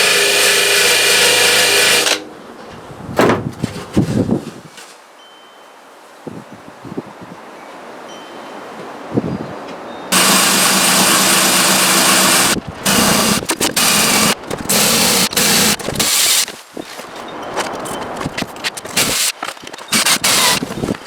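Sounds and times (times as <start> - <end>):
power tool whirring: 0.0 - 2.2, 10.1 - 16.6, 18.9 - 21.0.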